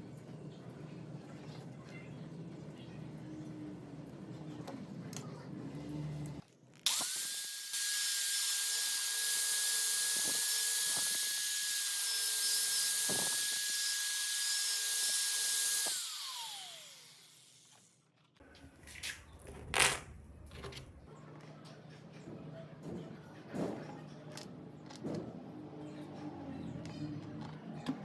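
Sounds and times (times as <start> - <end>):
electric power tool whining: 6.9 - 17.9.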